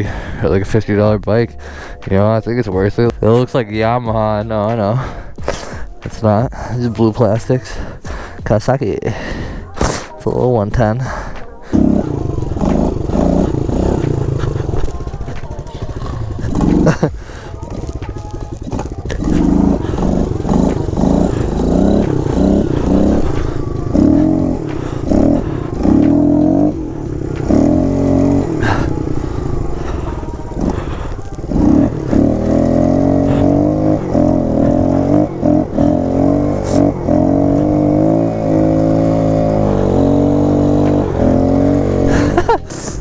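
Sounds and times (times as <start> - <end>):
small motorbike engine revving: 5.4 - 43.0.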